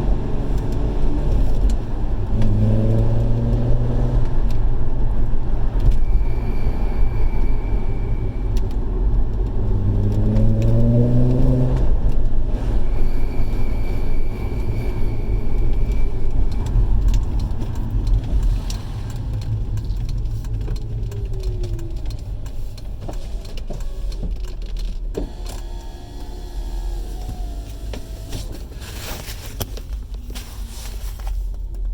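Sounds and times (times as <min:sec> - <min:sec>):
engine revving: 0:00.0 - 0:04.7, 0:09.5 - 0:12.1
car road and engine rumble: 0:00.0 - 0:31.9.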